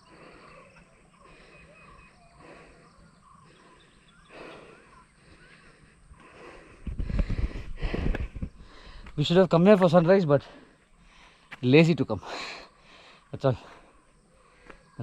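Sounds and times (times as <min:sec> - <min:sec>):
faint birds calling: 0:00.0 - 0:15.0
wind buffeting microphone: 0:06.6 - 0:09.3.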